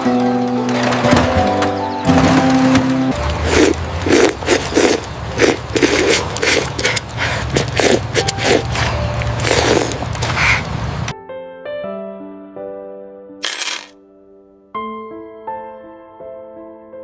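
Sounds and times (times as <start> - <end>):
scraping strokes: 3.3 - 10.7.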